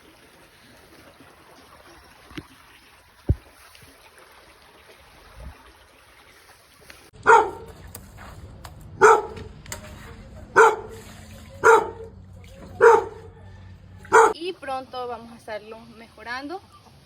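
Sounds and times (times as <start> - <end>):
dog barking: 7.2 - 7.8, 9.0 - 9.5, 10.5 - 11.0, 11.6 - 14.4.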